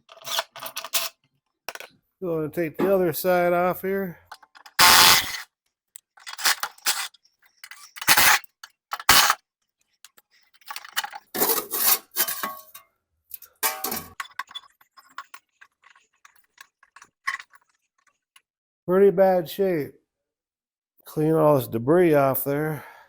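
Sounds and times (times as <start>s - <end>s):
metal clanking and clinking: 6.1s - 9.4s, 10.6s - 12.8s, 13.6s - 18.2s.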